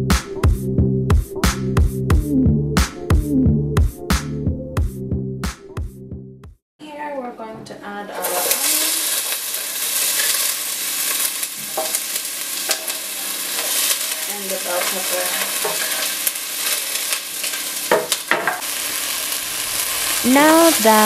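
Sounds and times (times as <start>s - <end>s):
vegetables sizzling in a pot: 8.1s - 21.0s.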